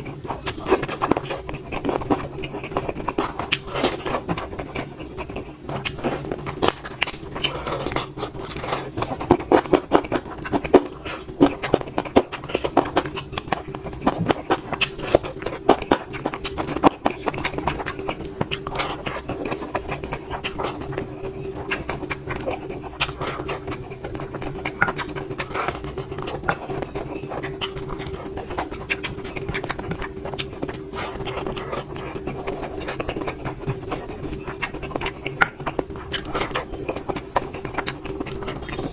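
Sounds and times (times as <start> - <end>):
steady low hum: 0.0 - 38.9
wet chewing and lip-smacking: 0.0 - 38.9.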